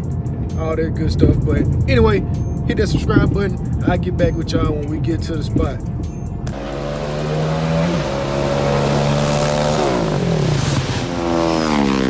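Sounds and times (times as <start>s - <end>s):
vehicle engine revving: 5.2s - 12.0s.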